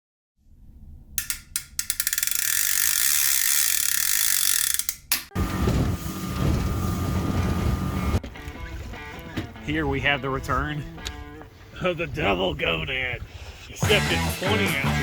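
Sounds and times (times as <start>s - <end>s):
rapid ratcheting clicks: 1.2s - 5.3s
loud low rumble: 5.4s - 8.2s.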